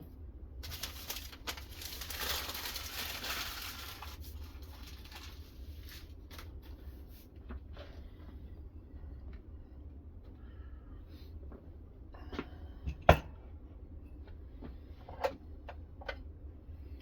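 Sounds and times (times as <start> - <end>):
rustling and crinkling: 0.6 - 8.5.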